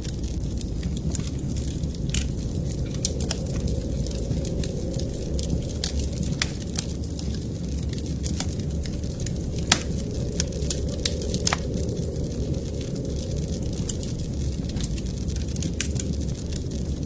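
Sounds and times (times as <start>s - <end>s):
low rumble: 0.0s - 17.0s
wood fire crackling: 0.0s - 17.0s.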